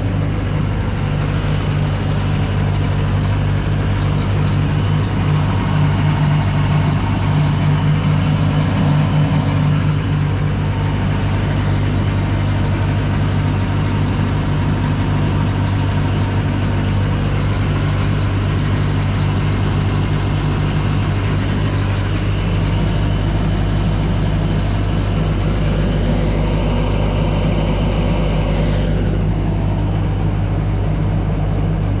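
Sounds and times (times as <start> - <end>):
diesel engine running steadily: 0.0 - 32.0.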